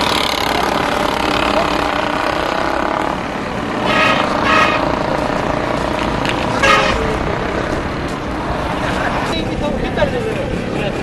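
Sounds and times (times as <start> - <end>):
road traffic: 0.0 - 11.0
vehicle horn tooting: 3.9 - 4.9, 6.5 - 7.2.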